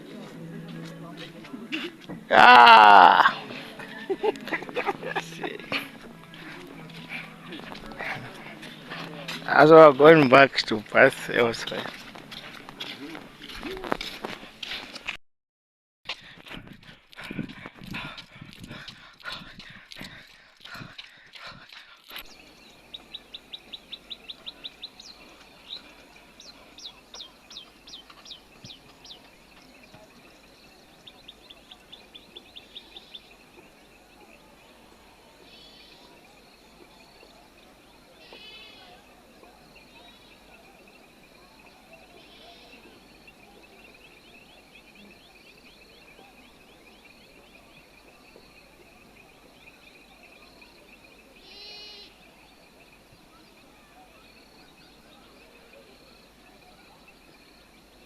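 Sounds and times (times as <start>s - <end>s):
small birds chirping: 18.8s - 58.0s.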